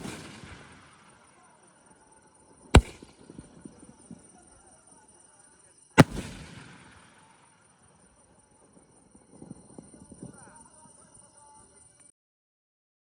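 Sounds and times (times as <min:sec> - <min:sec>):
firework bang with rumbling echo: 0:00.0 - 0:01.2, 0:02.8 - 0:03.6, 0:06.0 - 0:07.4.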